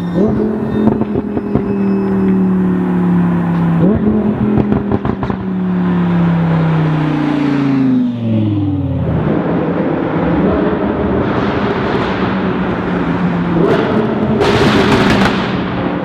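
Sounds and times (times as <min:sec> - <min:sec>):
exhaust popping and crackling: 0:00.0 - 0:05.7, 0:11.7 - 0:16.0
sports car engine revving: 0:00.0 - 0:16.0.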